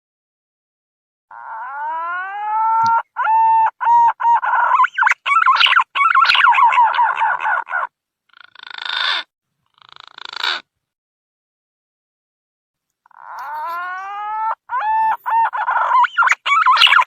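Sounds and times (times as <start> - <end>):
green pigeon song: 1.3 - 8.9, 13.1 - 17.0.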